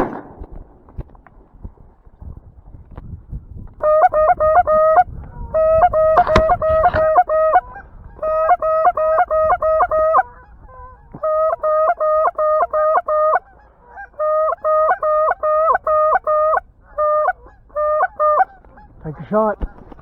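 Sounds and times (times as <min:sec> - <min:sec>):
sharp crack: 0:00.0 - 0:01.6, 0:06.2 - 0:07.1
goose honking: 0:03.8 - 0:19.9.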